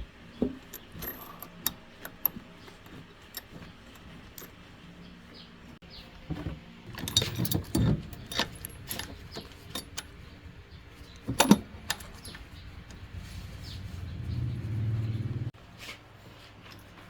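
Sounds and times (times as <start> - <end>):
tools clinking on metal parts: 0.5 - 4.7, 6.9 - 13.2
low hum: 8.1 - 15.6.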